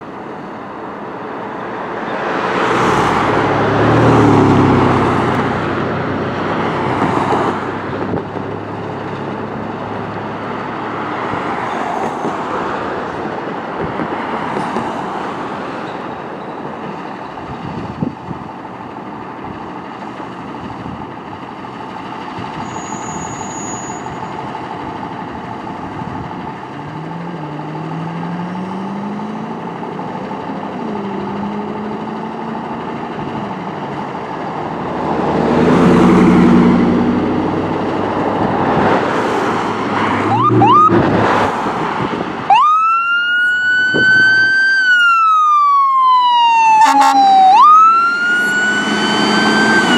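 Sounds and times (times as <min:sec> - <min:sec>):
traffic hum: 0:00.0 - 0:49.9
vehicles passing: 0:00.0 - 0:49.9
rising pitched tone: 0:40.0 - 0:41.4, 0:42.5 - 0:49.9.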